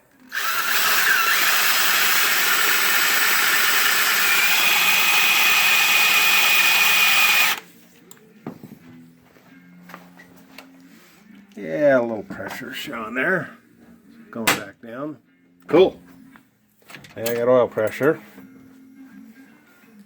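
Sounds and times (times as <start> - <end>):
electric drill running: 0.2 - 7.6.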